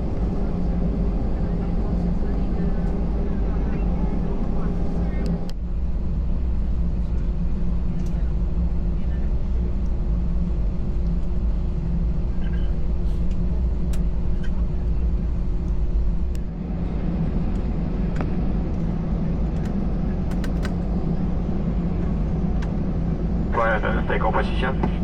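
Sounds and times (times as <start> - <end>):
faint hum: 0.0 - 25.0
jet engine rumble: 0.0 - 25.0.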